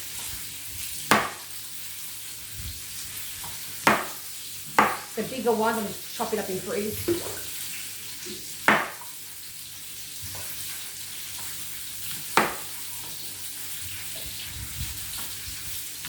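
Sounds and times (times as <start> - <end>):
chicken sizzling in a pan: 0.0 - 16.0
knife chopping on a board: 1.1 - 1.5, 3.8 - 5.2, 8.3 - 9.1, 12.3 - 12.8.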